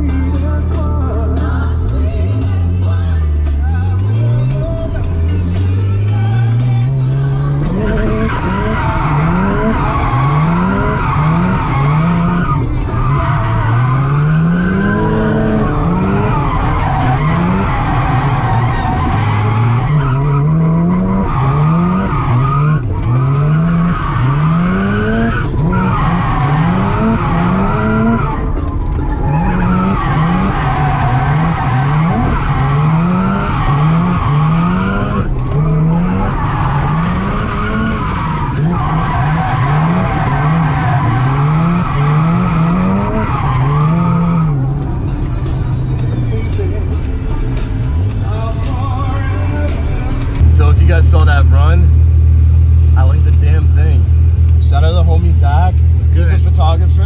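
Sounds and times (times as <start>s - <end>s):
tyres skidding: 0.0s - 57.0s
engine revving hard: 5.4s - 28.4s, 29.3s - 44.6s, 50.4s - 57.0s.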